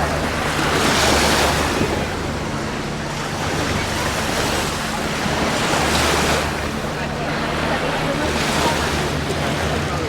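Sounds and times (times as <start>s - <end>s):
waves washing onto sand: 0.0s - 10.0s.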